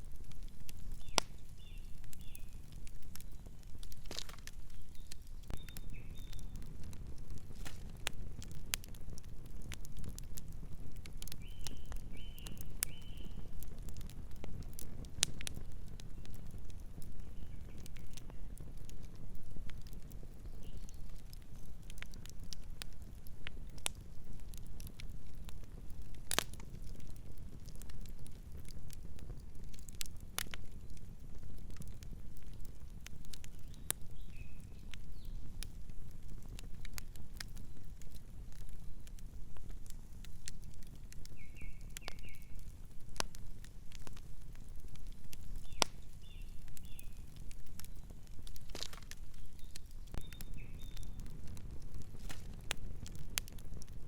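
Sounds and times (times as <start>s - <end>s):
campfire crackling and popping: 0.0s - 54.0s
bird chirping: 4.7s - 6.5s, 49.4s - 51.2s.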